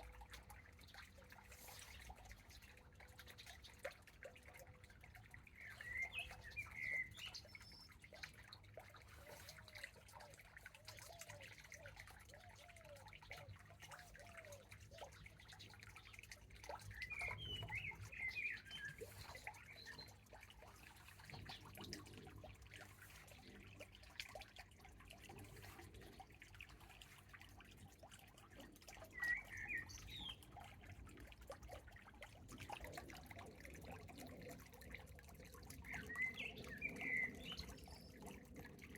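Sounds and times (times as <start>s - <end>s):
rainwater dripping from leaves: 0.0s - 38.9s
birds singing: 5.1s - 24.1s, 28.5s - 31.2s, 32.9s - 38.9s.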